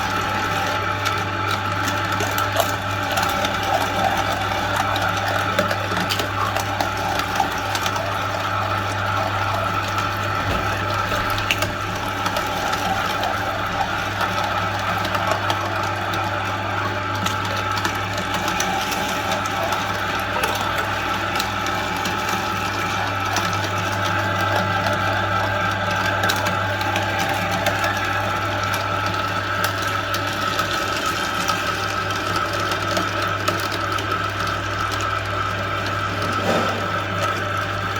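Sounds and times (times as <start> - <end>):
meat grinder motor running: 0.0 - 37.9.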